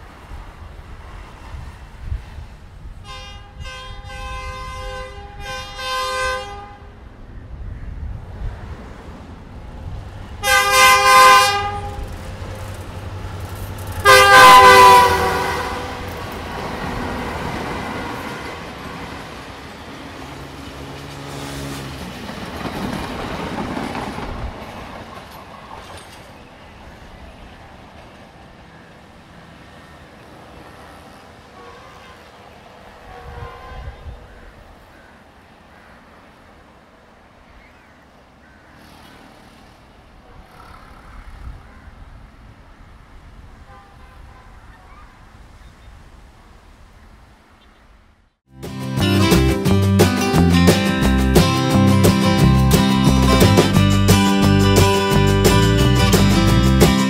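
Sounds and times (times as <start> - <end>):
train horn: 3.0 - 7.0, 10.4 - 12.2, 14.0 - 16.3, 17.8 - 18.9, 31.5 - 32.4, 33.0 - 34.3, 43.6 - 45.0
train wheels rumbling and clattering: 8.2 - 29.6.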